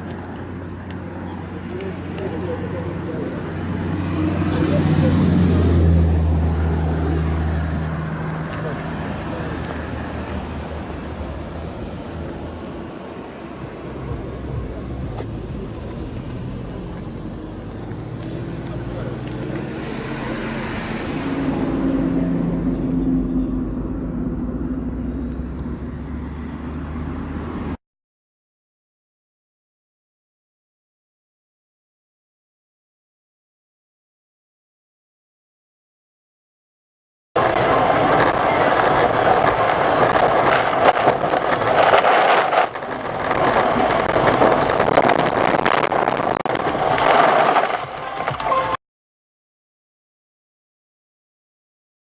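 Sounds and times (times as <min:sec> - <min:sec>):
vehicle engine running: 0:00.0 - 0:27.6
road noise: 0:00.0 - 0:27.8, 0:37.4 - 0:48.8.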